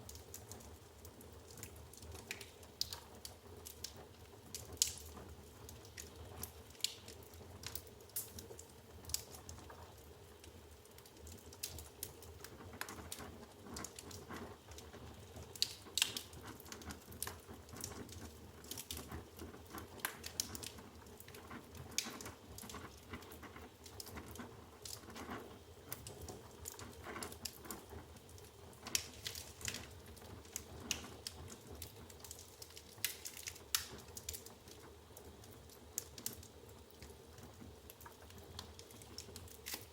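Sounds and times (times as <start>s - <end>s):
logs crackling and popping: 0.0s - 39.9s
low roar of flames: 0.0s - 39.9s.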